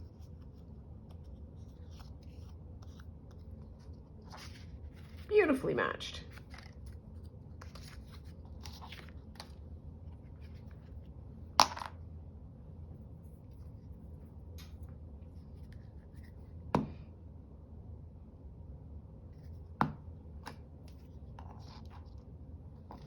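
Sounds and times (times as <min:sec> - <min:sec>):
faint scratchy paper sounds: 0:00.0 - 0:05.6, 0:06.2 - 0:11.2, 0:12.9 - 0:14.5, 0:15.2 - 0:16.6, 0:19.2 - 0:19.7, 0:20.6 - 0:23.0
low steady hum: 0:00.0 - 0:23.0.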